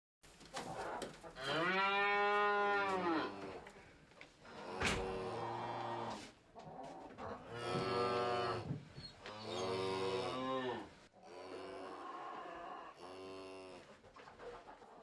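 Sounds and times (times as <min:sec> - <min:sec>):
cattle mooing: 0:01.4 - 0:03.6, 0:07.5 - 0:08.7, 0:09.4 - 0:13.8.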